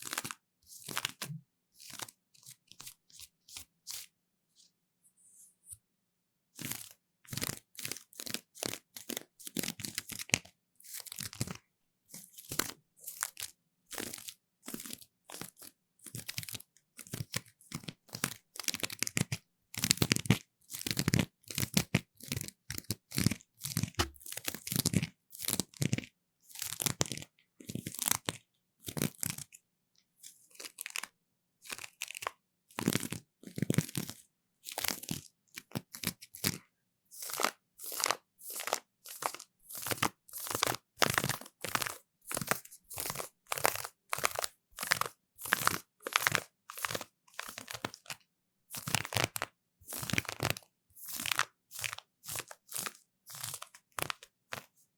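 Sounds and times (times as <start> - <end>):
floss scratching on microphone: 24.0 - 24.2.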